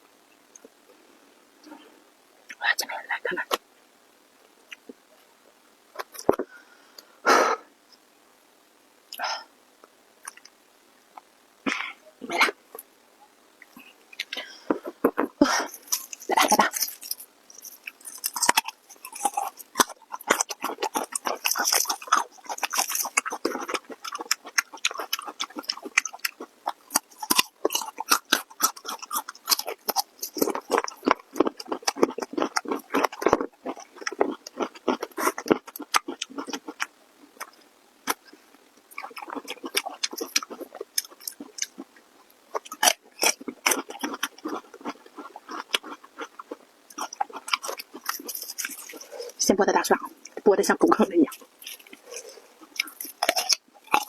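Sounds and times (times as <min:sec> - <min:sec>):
person chewing food wetly: 0:14.2 - 0:50.4, 0:51.3 - 0:54.0.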